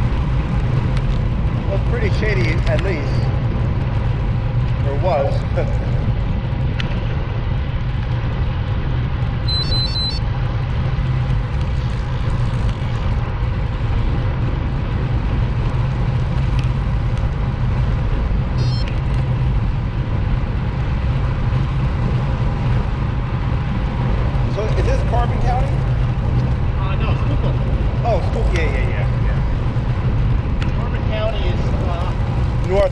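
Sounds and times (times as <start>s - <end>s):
motorcycle road rumble and wind: 0.0s - 32.9s
short high beeps: 9.5s - 10.2s, 18.6s - 18.9s.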